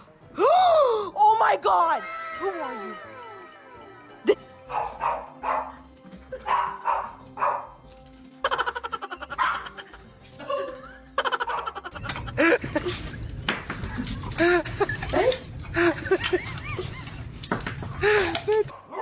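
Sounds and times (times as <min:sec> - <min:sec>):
background music: 0:00.0 - 0:19.0
dog barking: 0:04.7 - 0:05.8, 0:06.4 - 0:07.8, 0:09.3 - 0:09.8, 0:18.7 - 0:19.0.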